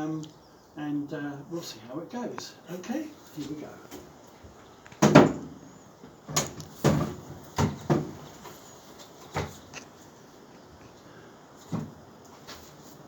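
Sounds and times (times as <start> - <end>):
wood and tools knocking on workbench: 5.0 - 5.6, 6.3 - 8.4, 11.6 - 12.0.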